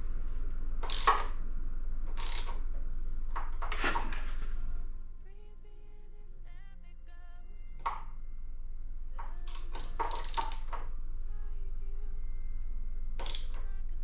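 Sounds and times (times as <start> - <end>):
metal tools clinking and clattering: 0.8 - 1.2, 2.2 - 2.6, 9.2 - 10.9, 13.2 - 13.8.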